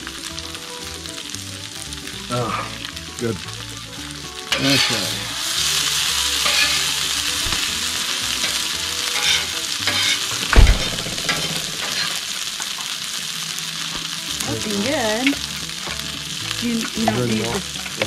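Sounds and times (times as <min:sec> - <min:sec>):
food sizzling in a frying pan: 0:00.0 - 0:18.0
heavy thump: 0:10.6 - 0:11.4.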